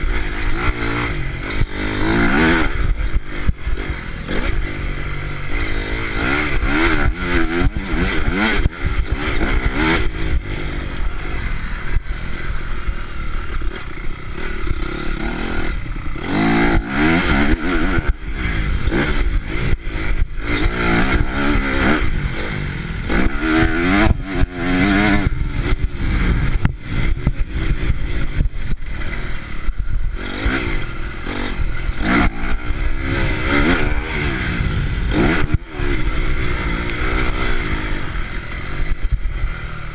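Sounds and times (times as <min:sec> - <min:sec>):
motocross bike engines revving: 0:00.0 - 0:39.9
low rumble: 0:18.0 - 0:39.9.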